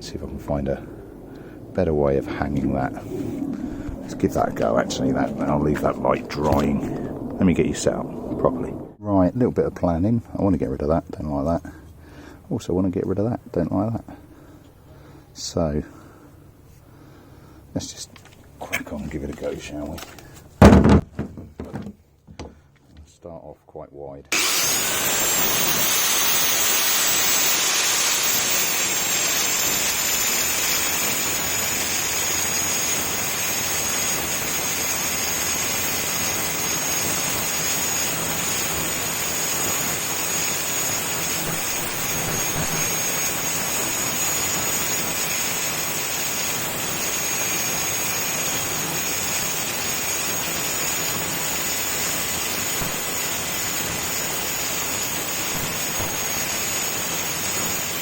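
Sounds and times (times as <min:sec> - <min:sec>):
angle grinder grinding steel: 0:24.3 - 0:58.0.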